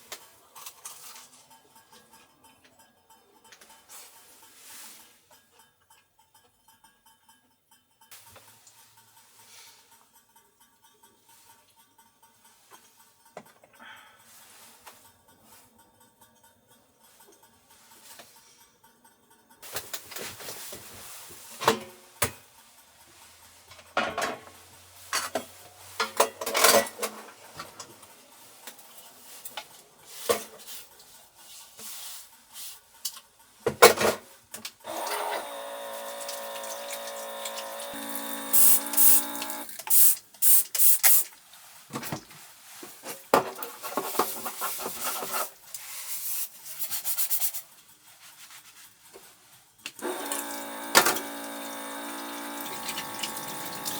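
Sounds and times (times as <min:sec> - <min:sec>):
water running: 0:34.9 - 0:40.0, 0:50.0 - 0:53.9.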